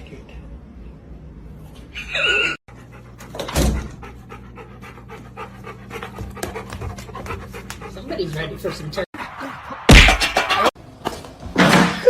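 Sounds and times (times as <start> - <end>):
dog panting: 2.7 - 9.6.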